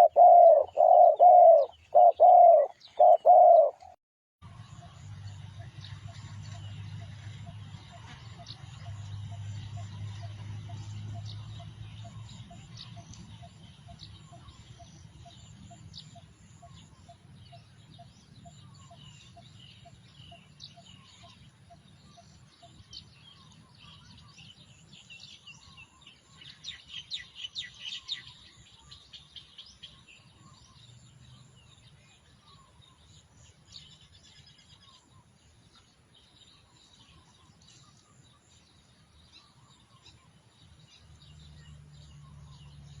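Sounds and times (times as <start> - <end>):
repeated low bird notes: 0.0 - 4.0
small birds chirping: 0.0 - 4.0, 4.6 - 43.0.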